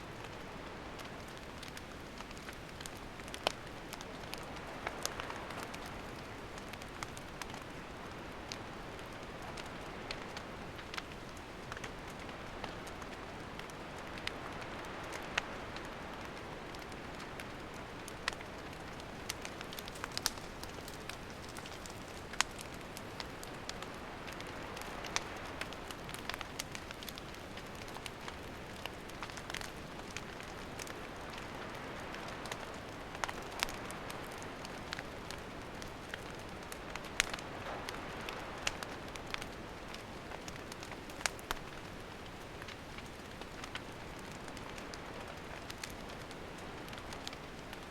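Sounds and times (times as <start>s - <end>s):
fire crackles and pops: 0.0s - 47.9s
campfire hissing: 0.1s - 47.9s.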